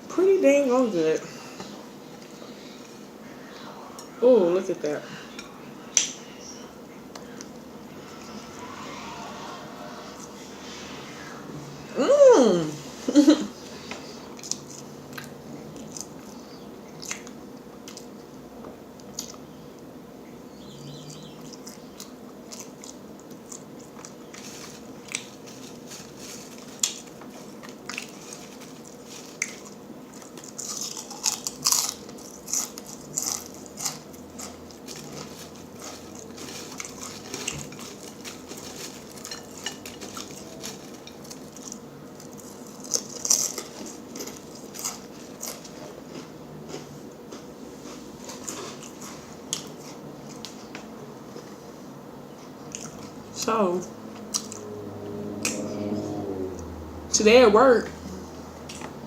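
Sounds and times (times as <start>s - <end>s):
chewing and crunching chips: 14.3s - 18.3s, 21.1s - 50.7s, 52.4s - 53.4s, 54.2s - 54.6s.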